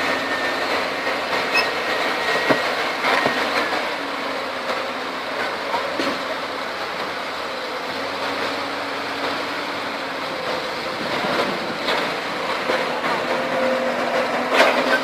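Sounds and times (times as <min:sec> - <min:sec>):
heavy diesel engines droning: 0:00.0 - 0:15.0.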